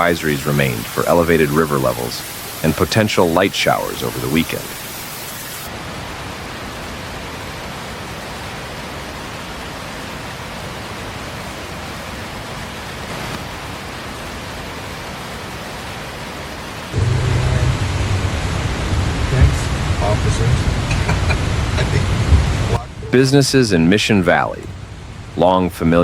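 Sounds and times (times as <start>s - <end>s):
hiss of heavy rain: 0.0s - 26.0s
low rumble with steady hum: 17.0s - 26.0s.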